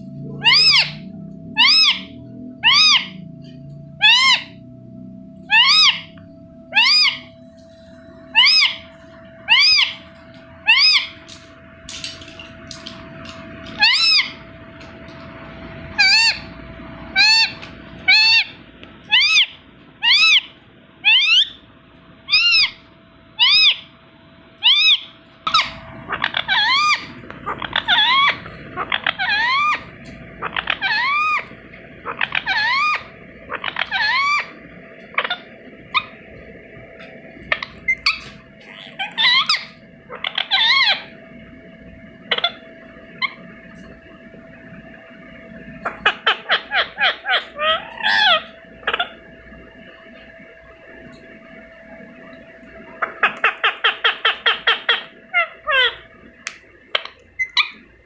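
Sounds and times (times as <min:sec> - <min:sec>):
parakeet shrill calls: 0:00.4 - 0:03.2, 0:04.0 - 0:04.6, 0:05.5 - 0:07.4, 0:08.3 - 0:14.5, 0:15.9 - 0:16.5, 0:17.1 - 0:21.6, 0:22.3 - 0:22.8, 0:23.4 - 0:23.9, 0:24.6 - 0:36.3, 0:37.4 - 0:41.2, 0:42.2 - 0:43.6, 0:45.4 - 0:50.0, 0:52.9 - 0:57.9.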